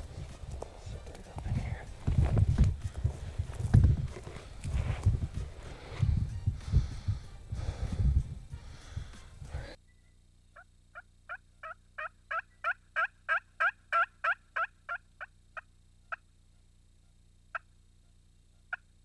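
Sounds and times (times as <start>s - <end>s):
turkey yelping: 10.6s - 15.3s.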